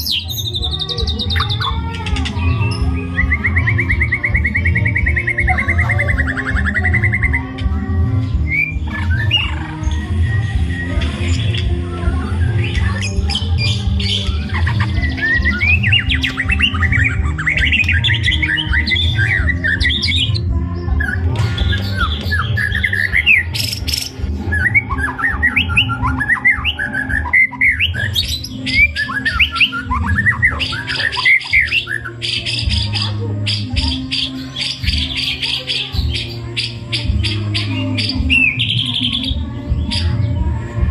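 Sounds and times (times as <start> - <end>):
bird singing whistles: 2.4 - 7.4, 8.4 - 9.7, 10.6 - 40.3.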